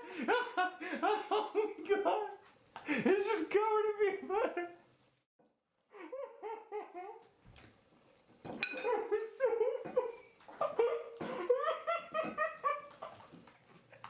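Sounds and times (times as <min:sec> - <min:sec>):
person laughing hard: 0:00.0 - 0:03.6, 0:05.9 - 0:07.3, 0:08.8 - 0:13.4.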